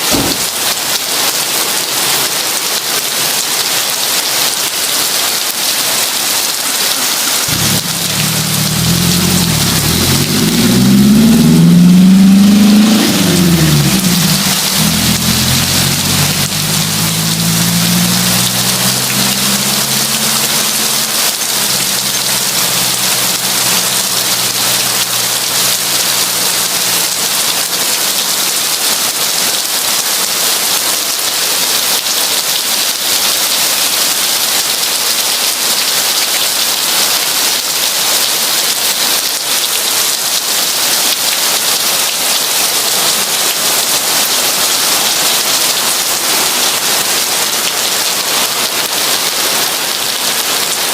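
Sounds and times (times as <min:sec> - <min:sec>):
heavy rain falling: 0:00.0 - 0:50.9
low engine hum: 0:07.5 - 0:26.8.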